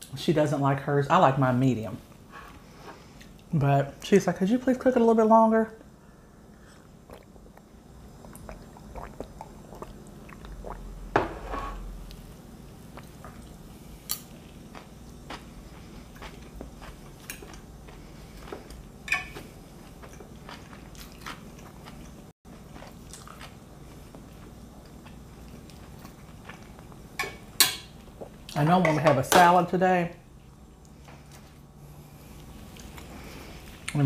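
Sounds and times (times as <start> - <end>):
chewing and crunching salad: 6.8 - 10.9, 12.1 - 28.6, 30.3 - 34.0.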